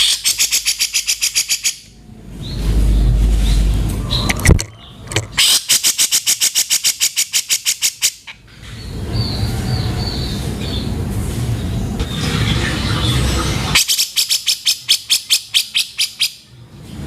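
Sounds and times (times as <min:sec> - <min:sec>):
bird harsh chattering call: 0:00.0 - 0:01.9, 0:05.4 - 0:08.4
low rumble: 0:01.9 - 0:05.2.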